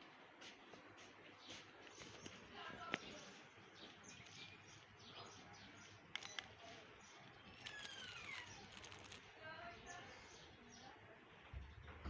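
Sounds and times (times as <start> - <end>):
bird chirping: 1.2 - 12.0
sharp clicks: 6.1 - 9.3.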